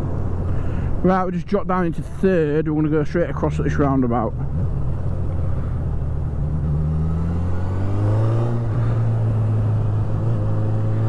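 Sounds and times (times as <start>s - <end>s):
motorcycle engine accelerating: 4.4s - 11.0s.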